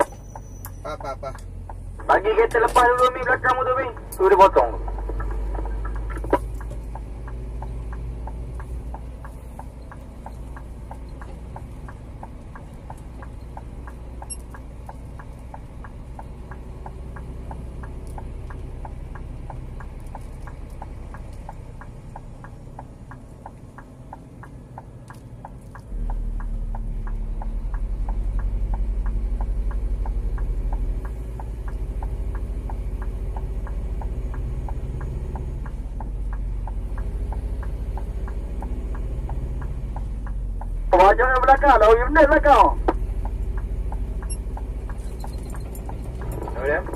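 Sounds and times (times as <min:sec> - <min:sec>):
diesel truck engine running: 0:00.0 - 0:46.9
indicator relay clicking: 0:05.2 - 0:33.5.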